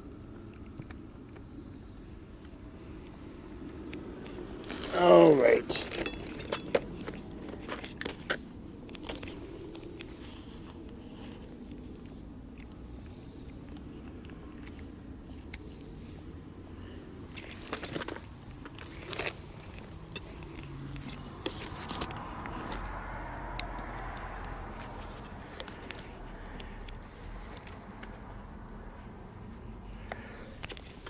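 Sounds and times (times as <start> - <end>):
handling clicks and scrapes: 2.4 - 16.4, 17.0 - 23.0, 23.6 - 31.0.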